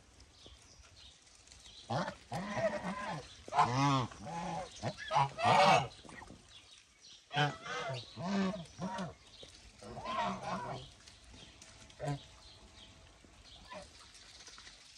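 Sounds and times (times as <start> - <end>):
geese honking: 1.9 - 5.9, 7.3 - 9.1, 9.8 - 11.0.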